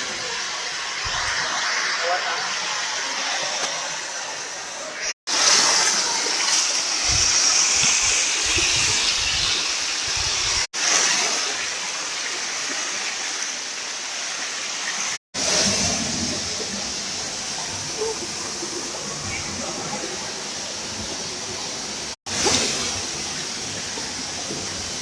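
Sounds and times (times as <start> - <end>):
wind buffeting microphone: 8.0 - 10.7.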